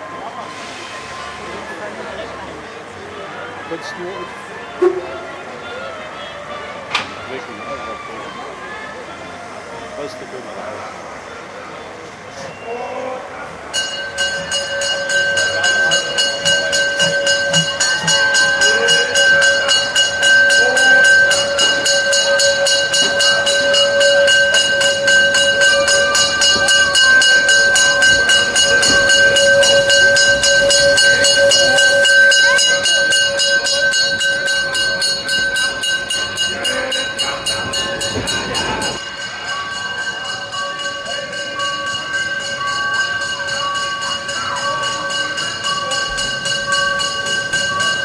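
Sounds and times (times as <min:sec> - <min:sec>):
crowd voices: 0:00.0 - 0:48.0
high ringing tone: 0:13.8 - 0:48.0.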